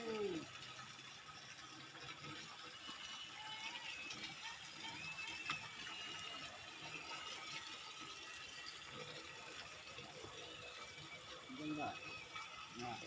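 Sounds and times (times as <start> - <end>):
faint running water: 0.0 - 13.0
faint high whistling tones: 10.6 - 13.0.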